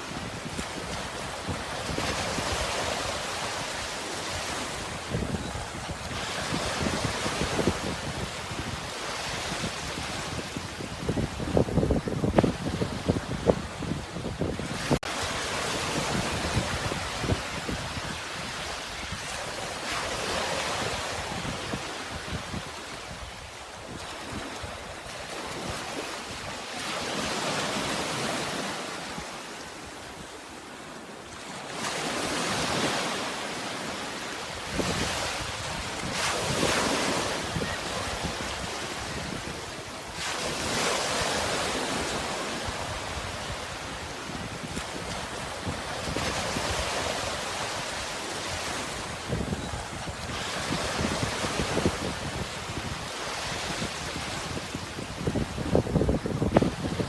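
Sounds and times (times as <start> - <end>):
wind buffeting microphone: 0.0 - 19.5, 34.6 - 57.0
sea waves breaking: 0.0 - 23.0, 23.6 - 57.0.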